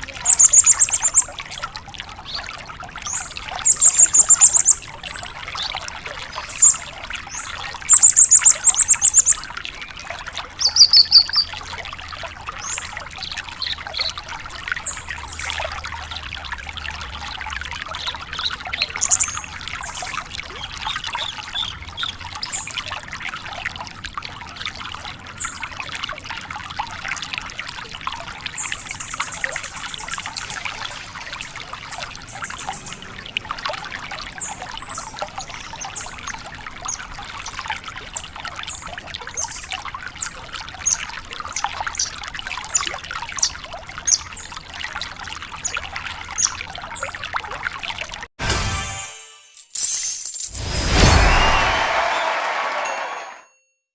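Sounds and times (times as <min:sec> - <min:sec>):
trickling water: 0:00.0 - 0:48.4
bird singing high trills: 0:00.3 - 0:01.3, 0:10.6 - 0:11.5, 0:31.9 - 0:33.1.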